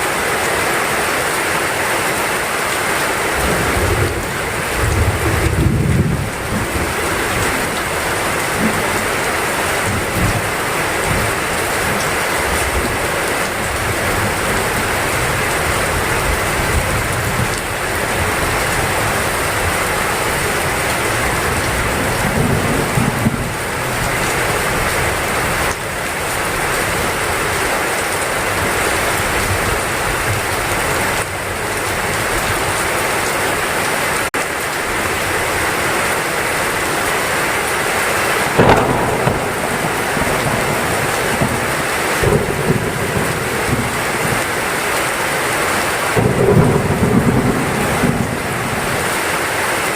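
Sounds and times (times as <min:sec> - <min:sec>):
heavy rain: 0:00.0 - 0:49.9
thunder rumbling: 0:03.3 - 0:27.6, 0:38.3 - 0:45.1, 0:45.7 - 0:49.6.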